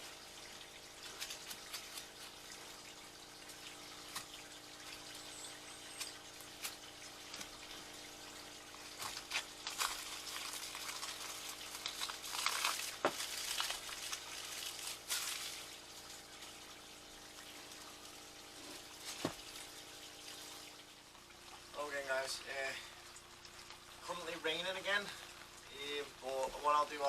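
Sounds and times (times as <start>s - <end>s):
rain falling: 6.0s - 16.5s.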